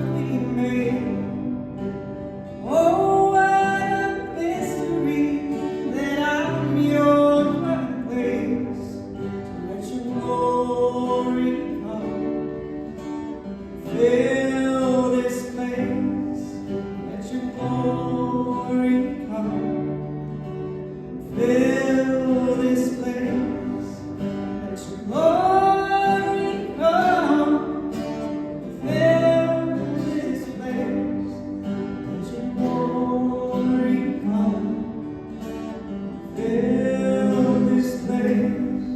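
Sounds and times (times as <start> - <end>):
acoustic guitar: 0.0 - 38.9
person singing: 2.6 - 9.0, 21.2 - 28.0.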